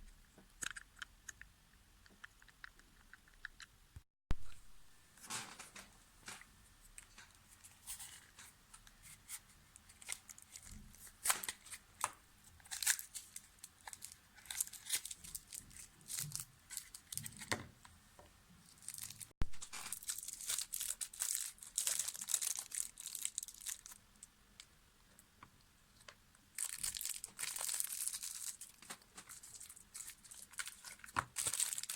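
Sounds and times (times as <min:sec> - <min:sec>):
material crinkling and tearing: 0:09.8 - 0:17.5, 0:18.7 - 0:24.0, 0:26.6 - 0:31.9
crackles: 0:18.6 - 0:25.4.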